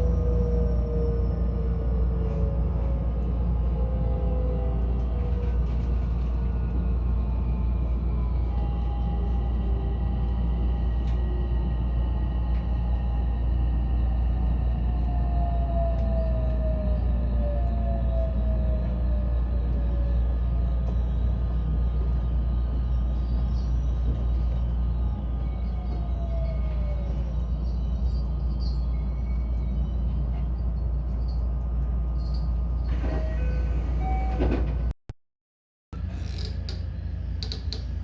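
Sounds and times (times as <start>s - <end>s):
electric train rumbling: 0.0s - 34.9s, 36.0s - 38.0s.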